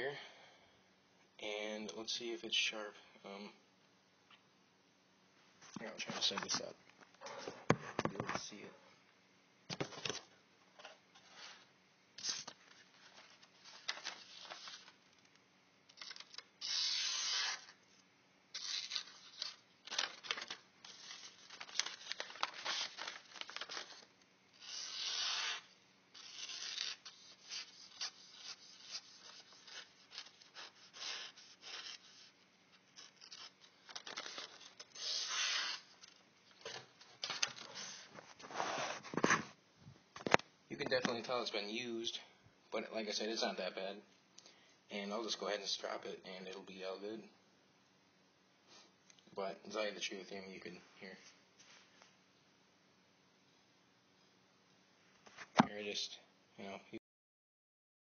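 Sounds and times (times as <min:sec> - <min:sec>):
knife slicing through paper: 0:16.1 - 0:17.8, 0:18.5 - 0:24.0, 0:24.6 - 0:32.3, 0:33.0 - 0:35.9.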